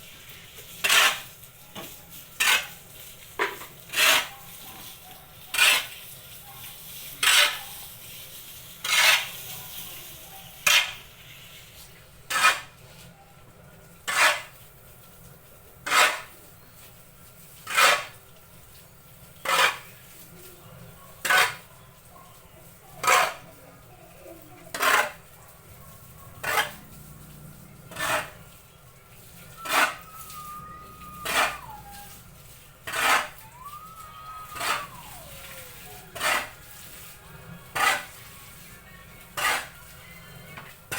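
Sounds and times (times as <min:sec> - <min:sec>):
faint falling whistle-like tones: 0:29.4 - 0:32.3, 0:33.4 - 0:36.0.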